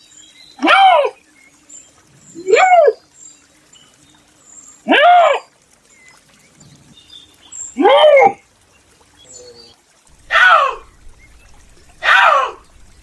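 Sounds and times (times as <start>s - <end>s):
animal wailing call: 10.2s - 10.9s, 12.0s - 12.7s.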